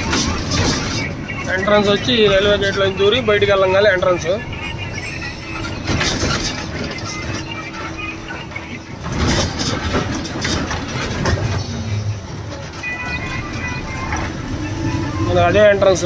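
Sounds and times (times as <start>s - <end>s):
road noise: 0.0s - 16.0s
truck engine drone: 0.0s - 16.0s
rattles: 5.4s - 16.0s.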